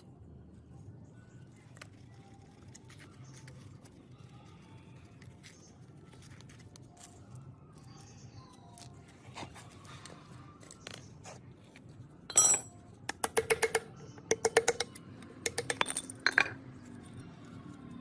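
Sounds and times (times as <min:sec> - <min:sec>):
metal parts clinking: 0:12.3 - 0:13.8, 0:14.4 - 0:16.6.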